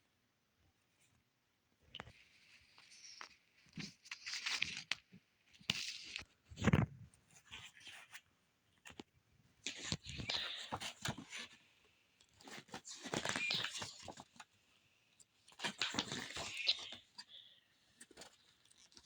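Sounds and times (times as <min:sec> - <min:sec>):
plastic and paper packaging crinkling: 0:03.8 - 0:05.1.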